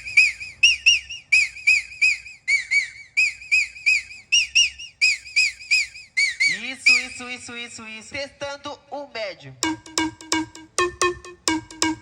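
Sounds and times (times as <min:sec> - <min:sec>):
high whistle-like chirps: 0:00.0 - 0:07.4.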